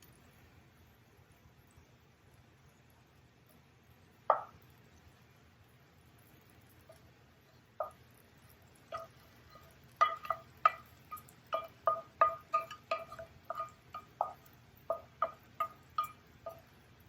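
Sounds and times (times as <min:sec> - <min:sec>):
metal utensil clinking on pan: 0:07.8 - 0:08.1, 0:08.7 - 0:16.8.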